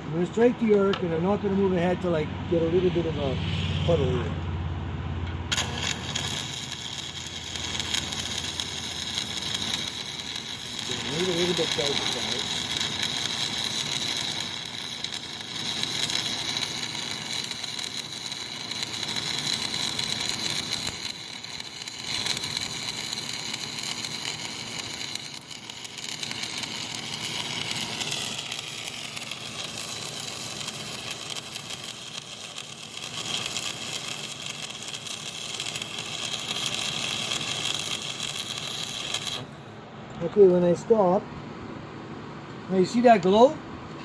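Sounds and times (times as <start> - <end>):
welding arc crackling: 5.5 - 39.7.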